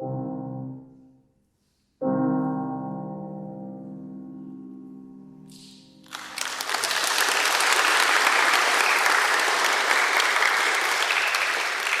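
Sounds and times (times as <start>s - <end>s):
piano chord: 0.0s - 1.2s, 2.0s - 6.2s
audience applause: 6.1s - 12.0s.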